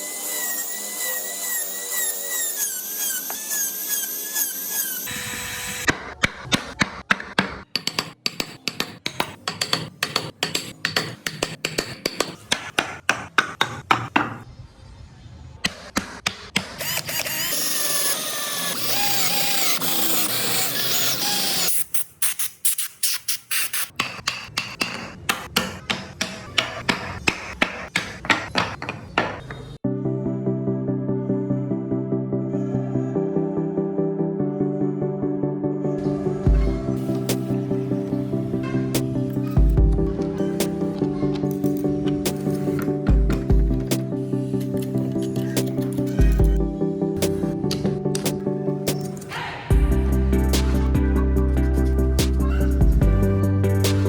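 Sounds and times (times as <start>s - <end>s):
power tool whining: 0.0s - 5.9s, 16.8s - 21.8s
rapid hammer strikes: 5.9s - 14.4s, 15.6s - 17.1s, 23.8s - 29.7s.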